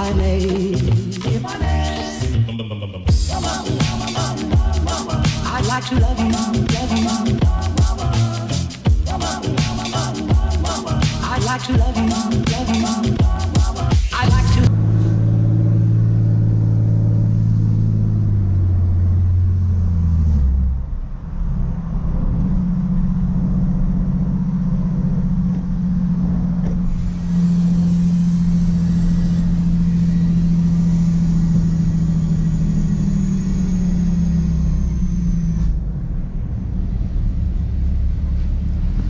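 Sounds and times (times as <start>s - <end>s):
loader engine running under load: 21.3s - 39.0s.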